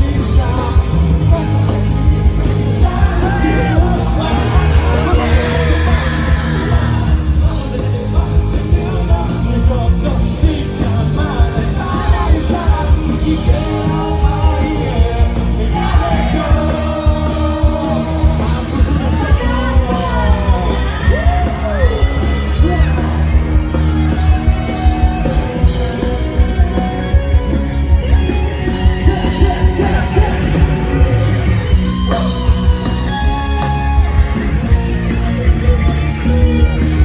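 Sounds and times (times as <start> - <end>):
person singing and yelling: 0.0 - 26.0, 28.9 - 31.2
live rock band playing: 0.0 - 37.0
pounding drums: 0.0 - 37.0.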